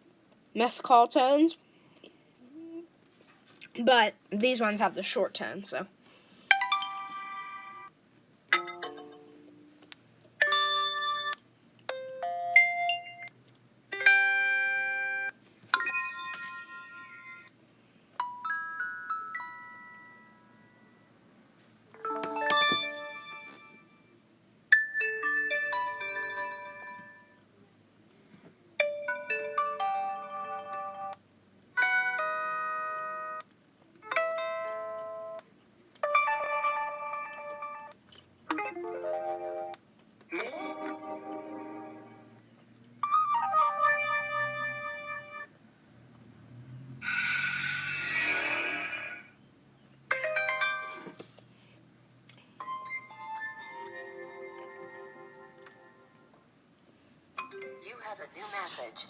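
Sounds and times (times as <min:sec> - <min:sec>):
ringtone jingles: 0:06.5 - 0:07.9, 0:10.4 - 0:13.3, 0:14.0 - 0:17.6, 0:22.0 - 0:24.0, 0:36.1 - 0:37.9, 0:47.0 - 0:49.4, 0:50.1 - 0:51.2, 0:52.6 - 0:55.5.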